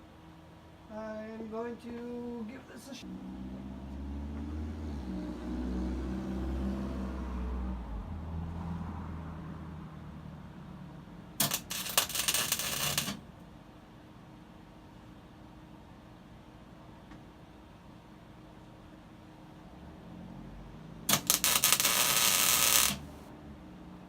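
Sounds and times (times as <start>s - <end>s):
welder arc crackling: 11.4s - 13.2s, 21.1s - 23.2s.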